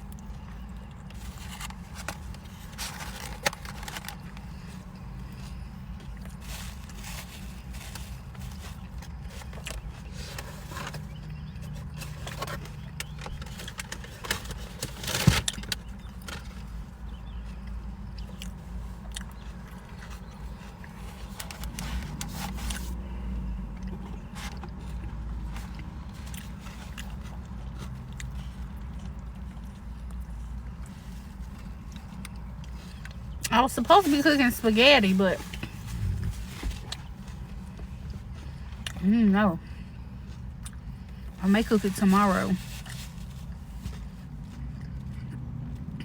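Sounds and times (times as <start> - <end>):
wrapper scrapes and clicks: 1.2 - 4.4
person chewing: 17.6 - 21.8
low hum: 31.6 - 42.3.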